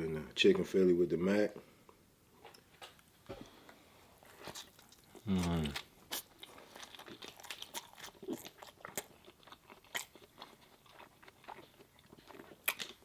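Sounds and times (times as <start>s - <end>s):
person chewing food: 4.2s - 13.0s
soft crunches and mouth clicks: 4.2s - 13.0s.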